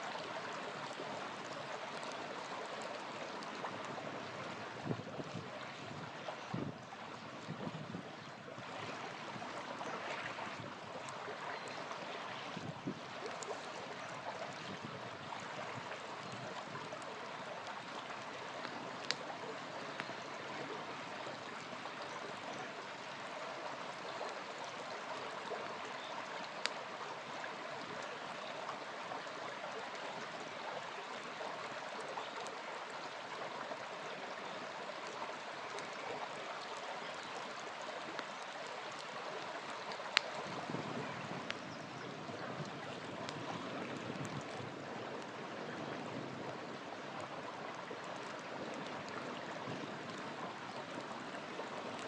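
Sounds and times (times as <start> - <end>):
small river flowing: 0.0 - 52.0
campfire pops: 18.5 - 20.2.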